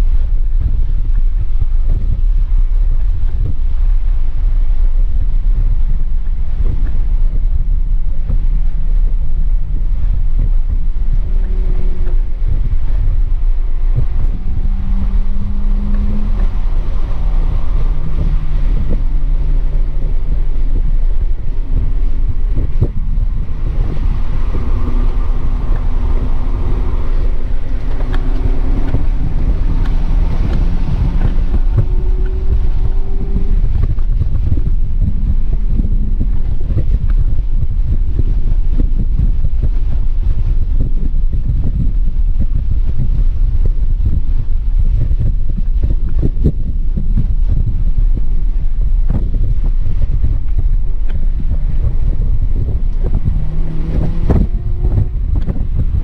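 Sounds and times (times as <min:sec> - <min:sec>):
car engine running: 0:00.0 - 0:56.0
road and wind noise: 0:00.0 - 0:56.0.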